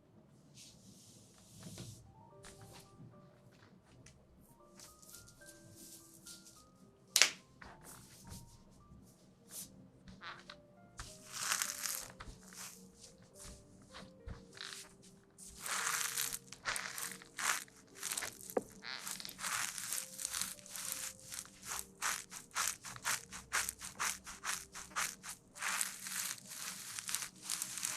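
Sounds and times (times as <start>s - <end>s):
faint background music: 0.0s - 27.9s
crinkling and scratching: 10.1s - 27.9s.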